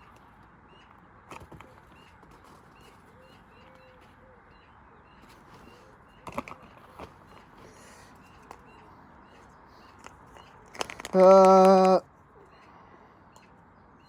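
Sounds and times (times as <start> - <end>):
faint bird chirps: 0.0 - 10.6, 11.9 - 14.0
low cooing call: 11.1 - 12.0.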